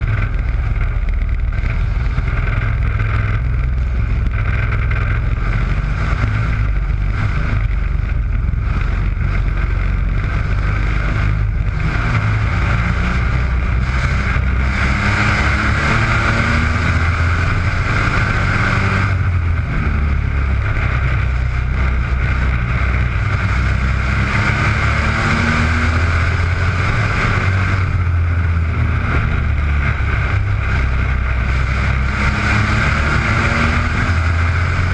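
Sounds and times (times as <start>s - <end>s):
racing truck engines: 0.0s - 34.9s.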